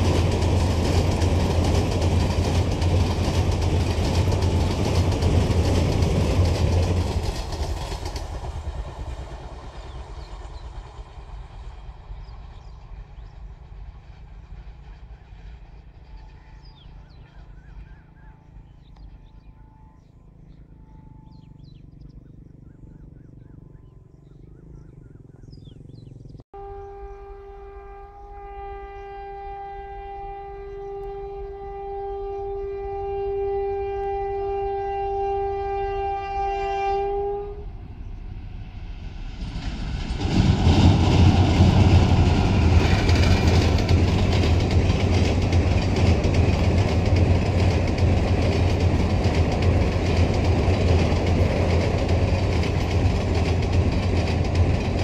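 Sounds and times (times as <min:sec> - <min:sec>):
train wheels rumbling on bridge: 0:00.0 - 0:19.4, 0:28.4 - 0:55.0
locomotive horn blast: 0:26.6 - 0:37.9.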